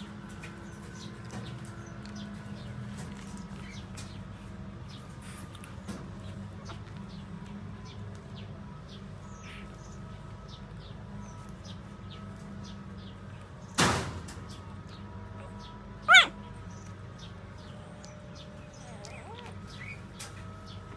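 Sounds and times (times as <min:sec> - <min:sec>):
puppy squeak: 0:16.1 - 0:16.4, 0:18.8 - 0:20.0.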